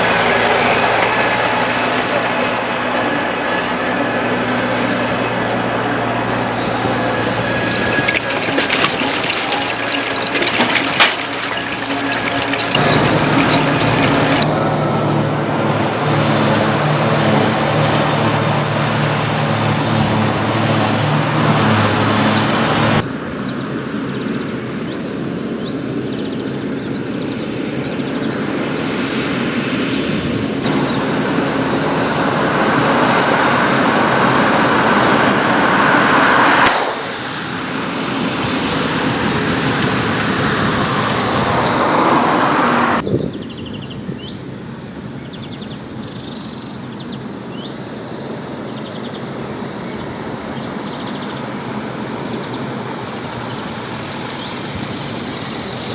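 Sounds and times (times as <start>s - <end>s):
loud rushing machine noise: 0.0s - 23.2s, 28.6s - 43.0s
tractor engine hum: 0.0s - 55.9s.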